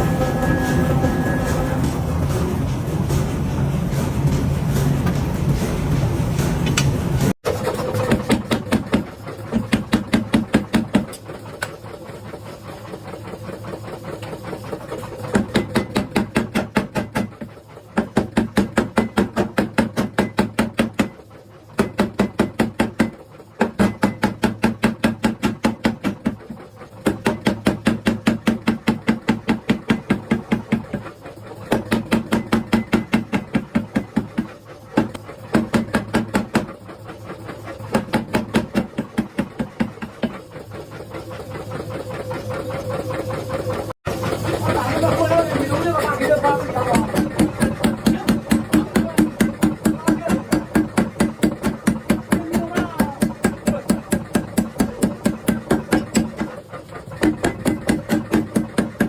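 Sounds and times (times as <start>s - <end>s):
machine humming: 0.0s - 7.4s
power hammer striking hot steel: 0.0s - 11.8s, 31.7s - 36.8s, 37.9s - 40.4s, 46.2s - 56.6s, 57.2s - 59.0s.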